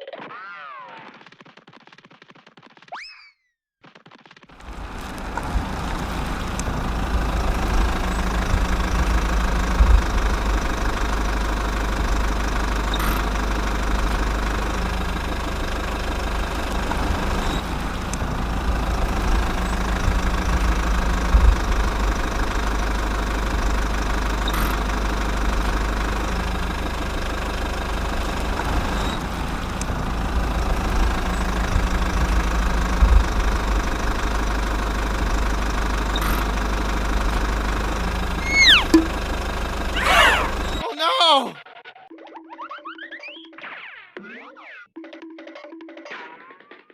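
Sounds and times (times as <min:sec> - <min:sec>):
tractor engine rumbling: 0:04.6 - 0:40.8.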